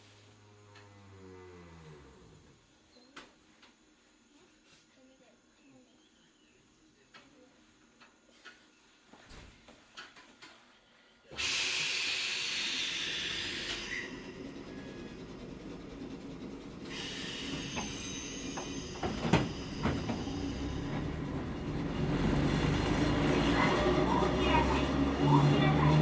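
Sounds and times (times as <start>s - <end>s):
loud air hiss: 11.4s - 14.2s, 16.9s - 20.8s
train car running rumble: 12.8s - 26.0s.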